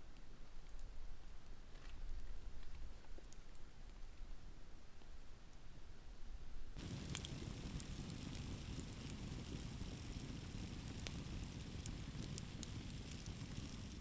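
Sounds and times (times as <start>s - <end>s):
burning wood crackling and popping: 6.8s - 14.0s
campfire flames rushing: 6.8s - 14.0s.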